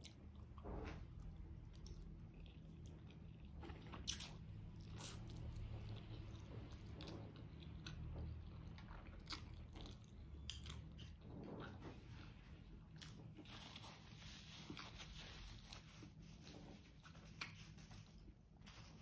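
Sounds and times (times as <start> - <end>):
faint low hum: 0.0 - 19.0
chewing with wet mouth clicks: 1.3 - 11.7.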